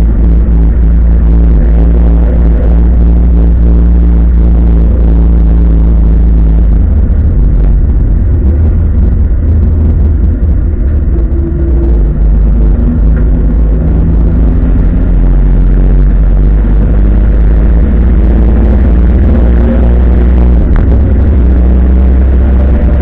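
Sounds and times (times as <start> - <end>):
race car engine running hard: 0.0 - 23.0.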